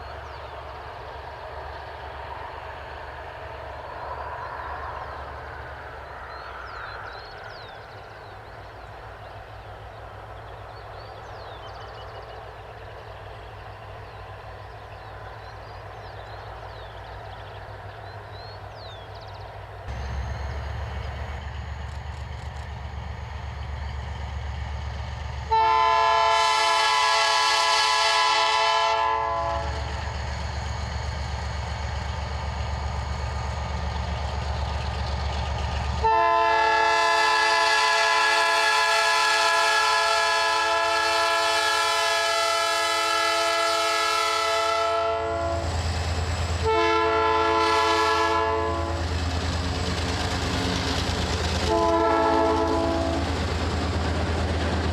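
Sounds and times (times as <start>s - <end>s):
locomotive engine rumbling: 0.0s - 54.9s
locomotive air horn blasts: 25.5s - 29.8s, 36.0s - 45.7s, 46.6s - 49.1s, 51.7s - 53.3s.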